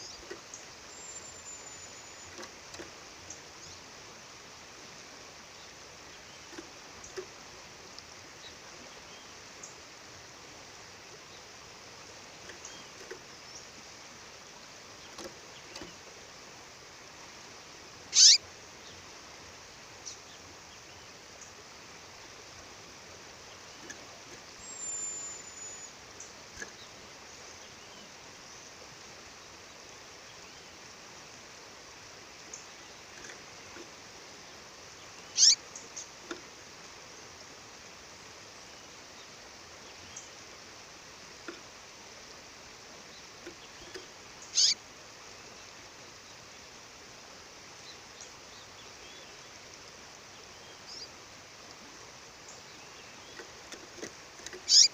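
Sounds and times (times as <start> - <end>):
faint bird chirps: 0.0 - 3.9, 18.1 - 19.0, 23.4 - 28.8, 34.9 - 36.2, 43.0 - 44.8, 50.3 - 51.2, 54.6 - 54.9
thin high bird whistle: 0.9 - 2.4, 18.1 - 18.4, 24.6 - 25.9, 35.4 - 35.6, 44.5 - 44.8
bird calling: 18.1 - 18.4, 23.8 - 26.0, 35.2 - 36.1, 43.5 - 44.8, 54.5 - 54.9.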